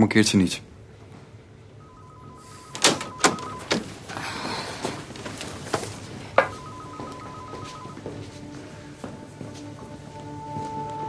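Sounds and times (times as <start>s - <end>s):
electronic trilling ring: 1.8s - 3.9s, 6.5s - 8.0s
shuffling rustle: 4.7s - 6.4s.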